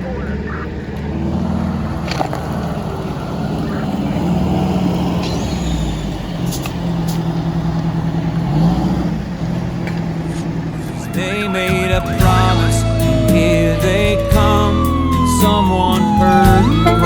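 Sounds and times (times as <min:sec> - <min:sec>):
diesel engine running: 0:00.0 - 0:17.0
sharp clicks: 0:06.4 - 0:07.9.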